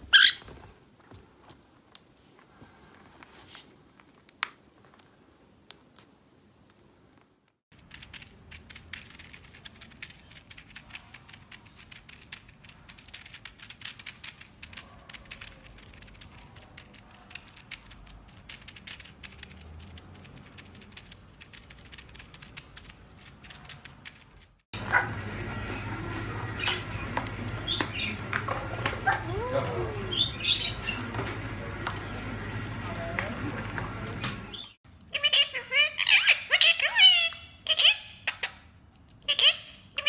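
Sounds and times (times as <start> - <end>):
rapid small clicks and crackles: 3.9 - 24.7.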